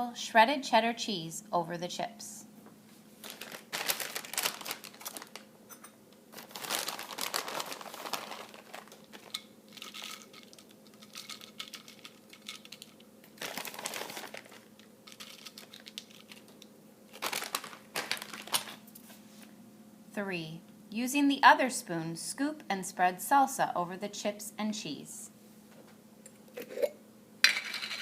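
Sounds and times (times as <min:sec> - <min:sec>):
faint steady hum: 0:00.0 - 0:28.0
cheese crinkling and rustling: 0:03.0 - 0:05.5, 0:06.3 - 0:19.2.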